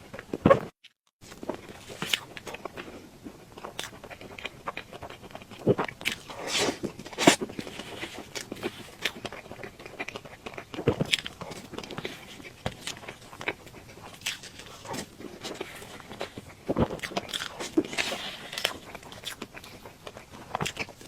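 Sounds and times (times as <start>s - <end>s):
person chewing and biting cake: 0.0s - 21.0s.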